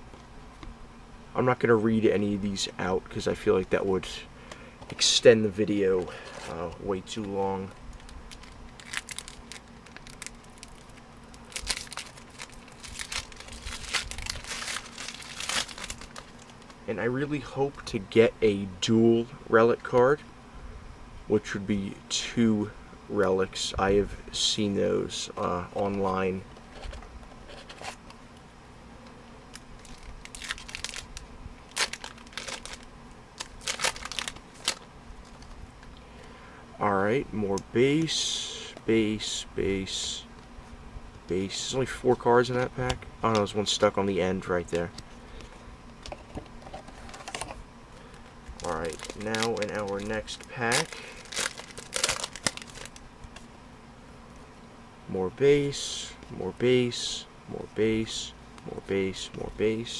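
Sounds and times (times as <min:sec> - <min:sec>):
air conditioner hum: 0:00.0 - 0:59.9
wrapper crinkling: 0:07.9 - 0:16.8, 0:29.5 - 0:35.6, 0:46.8 - 0:53.4
cards being handled: 0:08.0 - 0:16.8, 0:44.6 - 0:53.5.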